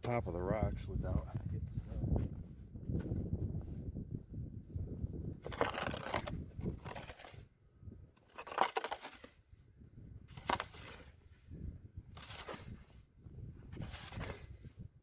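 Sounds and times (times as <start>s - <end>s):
snow shovel scraping: 5.4s - 7.4s, 8.2s - 9.4s, 10.3s - 11.2s, 12.2s - 13.0s, 13.7s - 14.7s.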